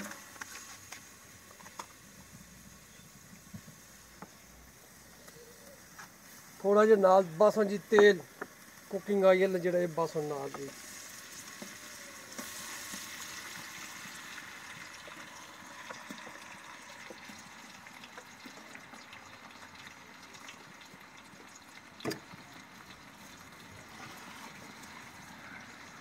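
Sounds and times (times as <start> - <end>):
small crackles: 0.0 - 6.6
onions sizzling in a pot: 0.0 - 26.0.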